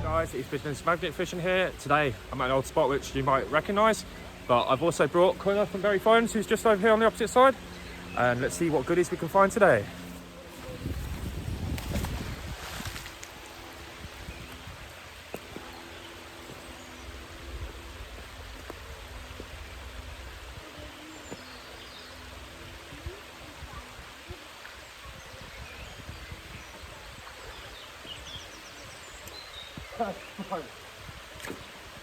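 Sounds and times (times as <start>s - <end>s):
wind rumble on microphone: 0.0s - 4.6s, 10.1s - 32.0s
water rushing: 0.0s - 32.0s.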